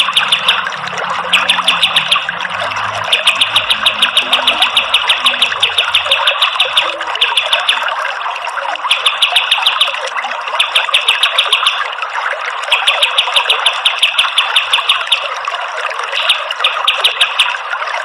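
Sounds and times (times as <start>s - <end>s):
bird rapid rattling call: 0.0s - 2.3s, 3.0s - 7.8s
flowing water: 0.0s - 18.0s.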